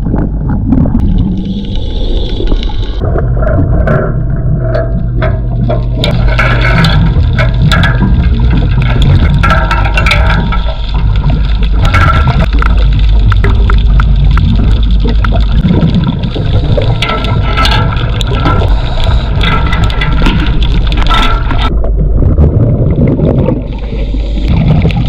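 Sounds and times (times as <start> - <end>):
gurgling bubbles: 0.0 - 25.0
underwater low rumble: 0.0 - 25.0.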